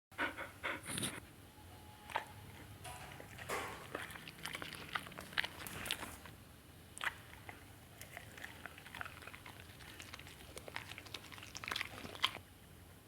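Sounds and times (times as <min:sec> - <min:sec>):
dog chewing food: 0:02.1 - 0:06.4, 0:07.0 - 0:12.4.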